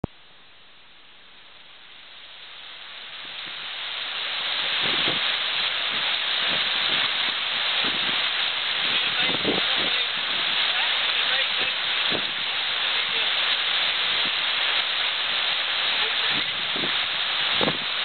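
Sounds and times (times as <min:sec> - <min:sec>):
waterfall rushing: 0:01.8 - 0:18.0.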